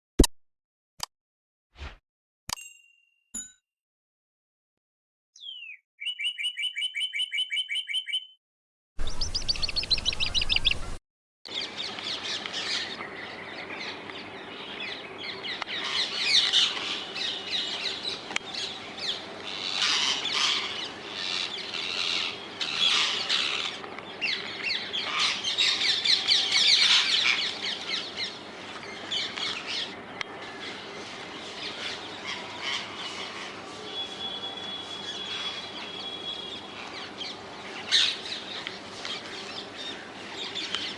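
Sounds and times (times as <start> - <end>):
parakeets calling shrilly: 13.8 - 40.9.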